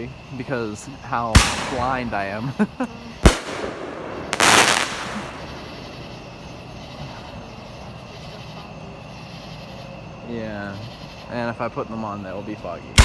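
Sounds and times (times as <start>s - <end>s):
low steady background: 0.0s - 13.0s
firework pop and burst: 1.4s - 2.4s, 3.2s - 6.2s.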